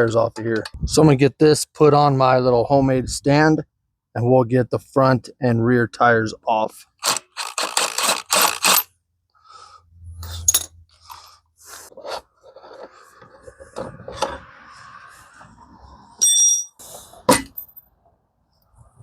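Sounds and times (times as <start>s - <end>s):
metal scraping: 10.0s - 17.6s.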